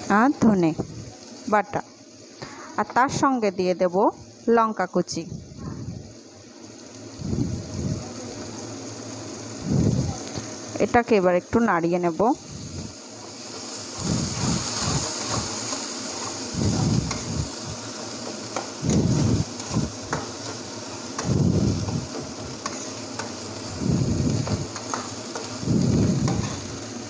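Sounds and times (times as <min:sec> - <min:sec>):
masala sizzling in hot oil: 0:00.0 - 0:27.0
spatula clicking on pan: 0:19.6 - 0:20.6, 0:22.1 - 0:23.5, 0:24.4 - 0:25.6.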